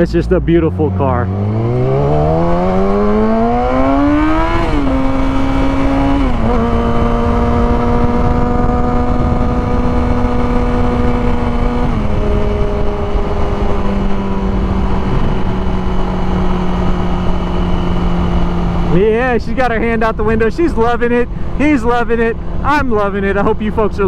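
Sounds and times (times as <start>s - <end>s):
motorcycle engine pulling hard: 1.2s - 19.2s
wind rush: 1.3s - 18.9s.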